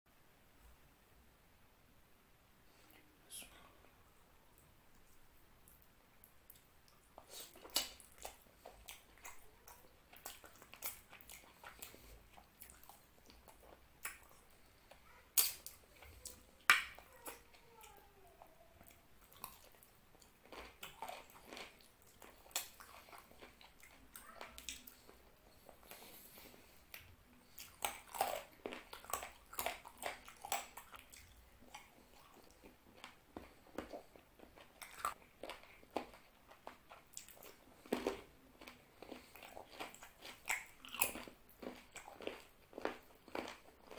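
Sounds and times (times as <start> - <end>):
close chewing: 5.7 - 18.0, 18.8 - 43.9
sharp mouth clicks: 15.4 - 17.0.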